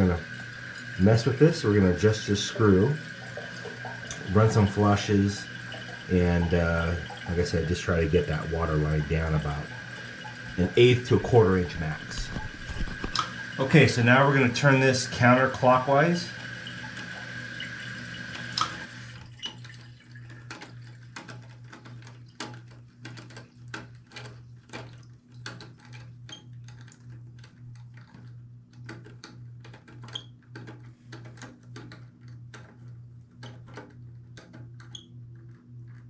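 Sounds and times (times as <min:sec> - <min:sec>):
water hissing into toilet tank: 0:00.0 - 0:20.5.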